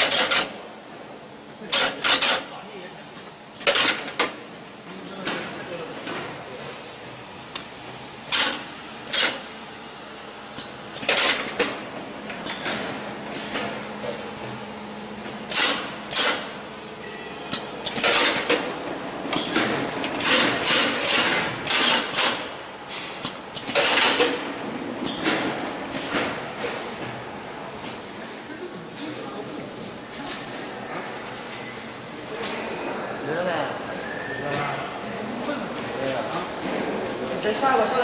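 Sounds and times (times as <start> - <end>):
packaging machine clacking: 17.8 - 18.7.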